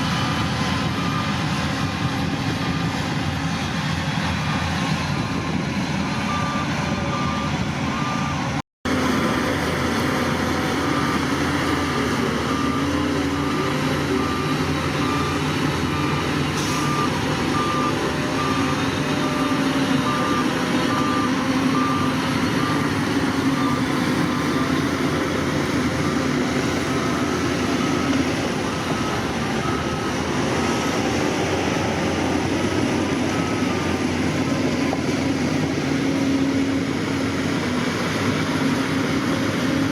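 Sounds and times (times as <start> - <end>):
reversing alarm beeps: 0.0 - 1.6, 6.3 - 8.6, 10.8 - 25.3, 25.9 - 36.0
diesel machine engine drone: 0.0 - 39.9.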